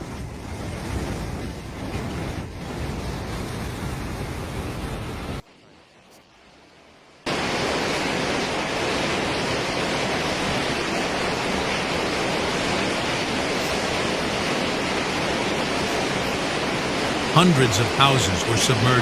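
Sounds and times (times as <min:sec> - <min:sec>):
floodwater rushing: 0:07.2 - 0:19.0.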